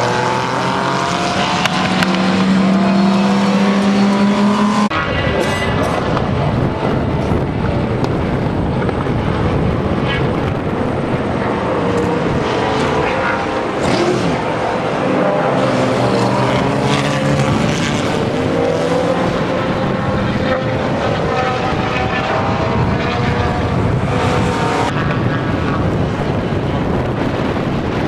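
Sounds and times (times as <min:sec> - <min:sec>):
racing car engines: 0:00.0 - 0:28.0.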